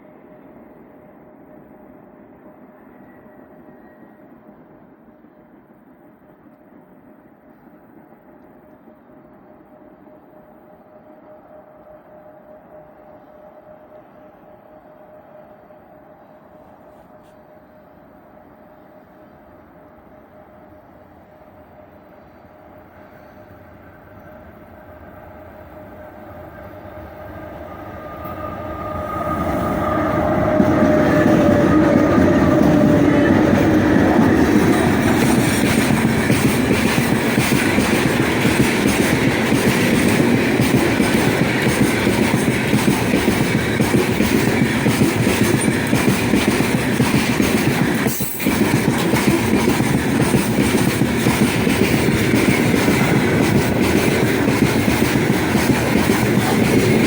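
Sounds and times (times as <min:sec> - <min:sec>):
electric locomotive whine: 0:00.0 - 0:57.0
clickety-clack of wheels on rails: 0:22.1 - 0:57.0.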